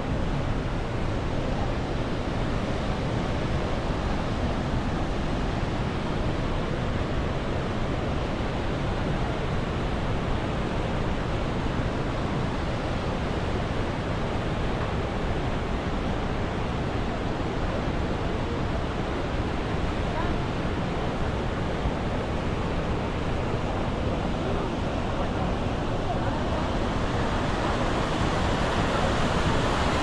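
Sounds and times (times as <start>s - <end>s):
waterfall rushing: 26.2s - 30.0s.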